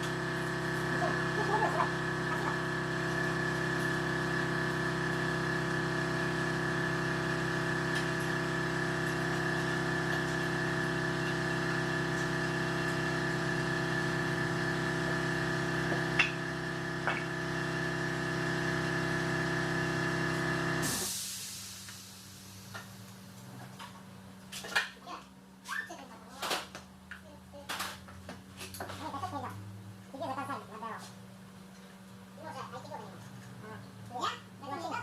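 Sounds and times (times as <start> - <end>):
machine humming: 0.0 - 21.2.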